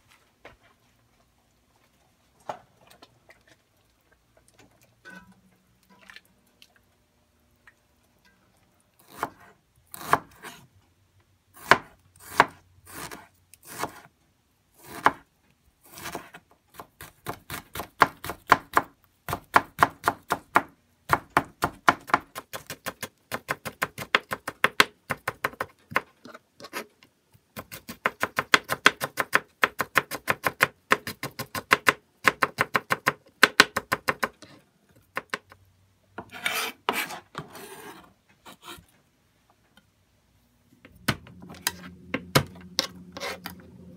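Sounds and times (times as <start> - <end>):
knife slicing on cutting board: 36.2 - 38.8, 42.8 - 43.6
short rubbing scrape: 36.3 - 38.8, 43.1 - 43.6.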